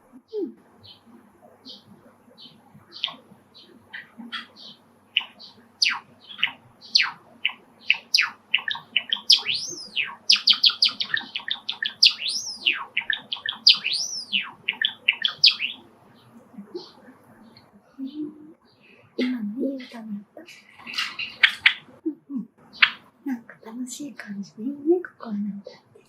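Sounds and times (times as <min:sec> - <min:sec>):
sparrow singing clicks and notes: 0:00.3 - 0:23.1
whistled bird notes: 0:00.8 - 0:17.6.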